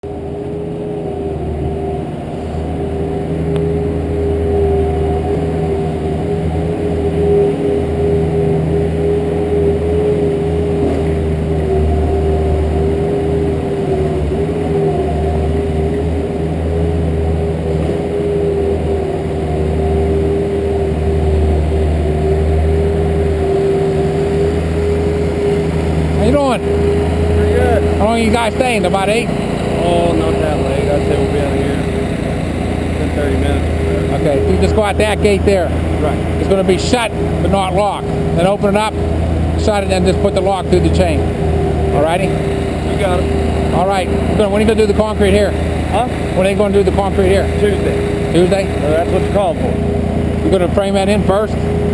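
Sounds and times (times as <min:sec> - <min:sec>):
steady whine: 0:00.0 - 0:51.9
truck engine drone: 0:00.0 - 0:51.9.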